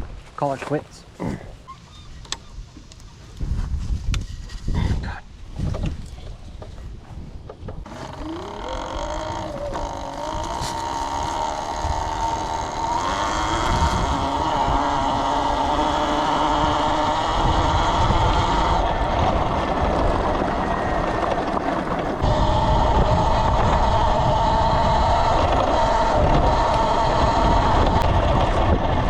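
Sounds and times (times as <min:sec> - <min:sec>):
wind rumble on microphone: 0:02.0 - 0:29.0
electric motorbike motor whine: 0:07.8 - 0:29.0.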